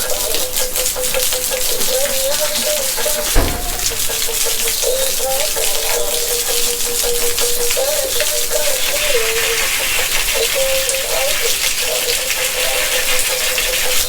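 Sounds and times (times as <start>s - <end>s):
water rushing: 0.0s - 14.0s
rattling clatter: 2.5s - 5.0s.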